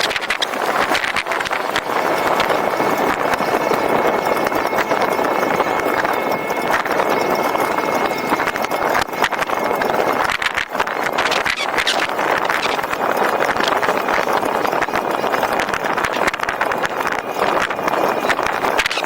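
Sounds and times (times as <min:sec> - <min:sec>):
tyre and wind noise: 0:00.0 - 0:19.0
quick clicks and rattles: 0:04.4 - 0:19.0.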